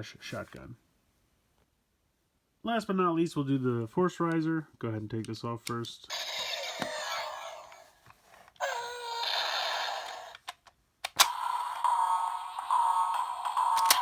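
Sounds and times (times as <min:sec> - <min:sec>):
sharp plastic clicks: 0:10.3 - 0:11.4, 0:13.7 - 0:14.0.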